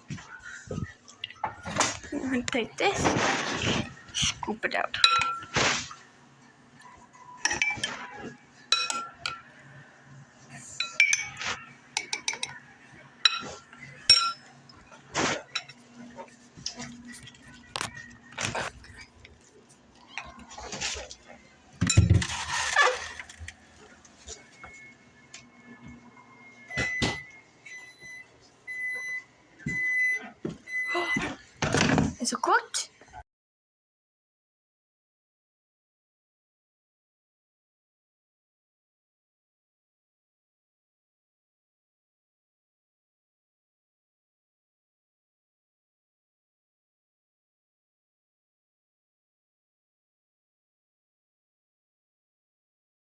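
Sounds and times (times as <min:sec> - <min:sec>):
utensil clinking against a dish: 0:05.0 - 0:05.6, 0:07.4 - 0:08.1, 0:08.7 - 0:09.5, 0:10.8 - 0:12.6, 0:13.2 - 0:14.5
microwave beeping: 0:24.5 - 0:31.9.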